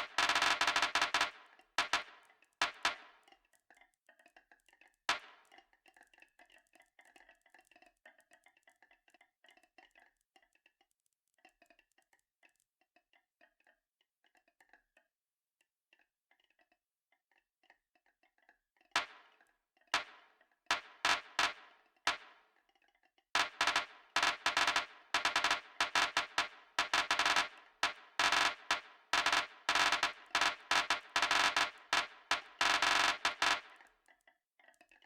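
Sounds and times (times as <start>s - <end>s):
marbles rolling on track: 0.0s - 3.0s, 23.4s - 33.9s
marbles clacking on track: 23.6s - 33.8s.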